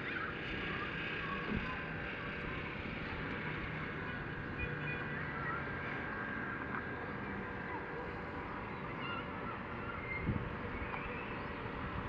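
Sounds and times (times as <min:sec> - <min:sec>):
wind through trees: 0:00.0 - 0:12.0
faint bird chirps: 0:08.6 - 0:11.8.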